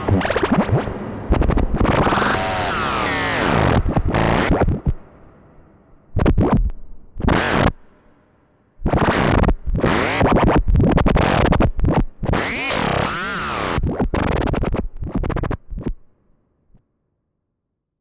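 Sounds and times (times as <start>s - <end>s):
synthesizer noise bursts: 0.0s - 6.6s.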